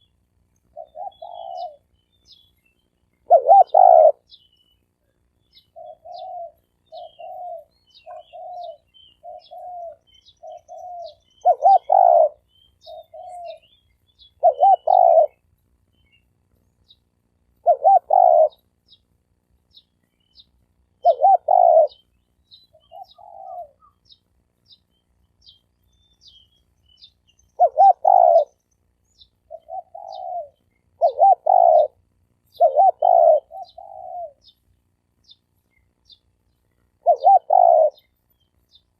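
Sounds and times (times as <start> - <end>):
faint small bird chirps: 0.0 - 38.9
doves cooing: 0.7 - 1.9, 3.2 - 4.4, 5.5 - 15.4, 17.6 - 18.7, 21.0 - 22.1, 22.7 - 24.1, 27.5 - 28.6, 29.4 - 34.6, 36.9 - 38.1.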